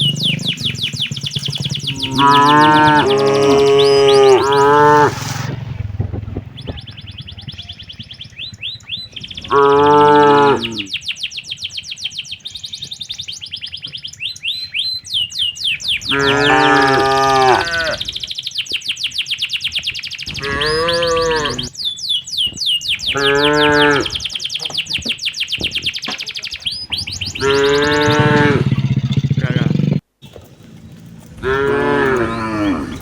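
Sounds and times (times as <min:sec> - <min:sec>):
rapid high-pitched chirping: 0:00.0 - 0:05.5, 0:10.7 - 0:29.8
cattle mooing: 0:01.8 - 0:05.6, 0:09.5 - 0:10.9, 0:16.0 - 0:18.1, 0:20.3 - 0:21.7, 0:23.1 - 0:24.3, 0:26.9 - 0:29.6, 0:31.0 - 0:33.0.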